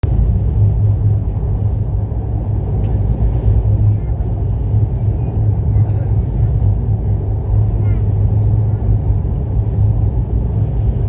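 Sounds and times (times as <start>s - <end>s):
train rumbling inside carriage: 0.0s - 11.0s
faint voices: 3.8s - 9.1s.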